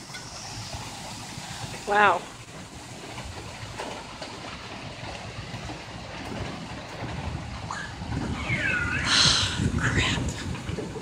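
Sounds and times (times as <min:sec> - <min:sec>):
hailstones ticking: 0:00.0 - 0:11.0
heavy rain and hail downpour: 0:00.0 - 0:11.0
high sweeping call: 0:07.8 - 0:10.3.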